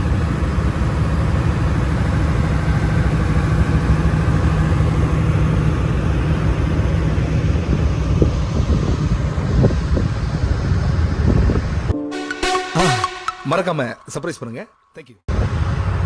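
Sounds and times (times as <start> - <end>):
wind buffeting microphone: 0.0 - 11.9
ferry engine droning: 0.0 - 13.1.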